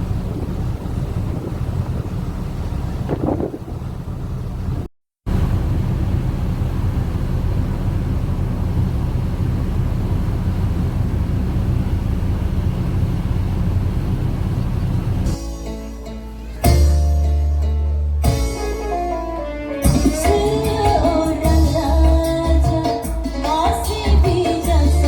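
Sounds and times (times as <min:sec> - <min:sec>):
ship engine rumble: 0:00.0 - 0:25.0
music: 0:15.3 - 0:25.0.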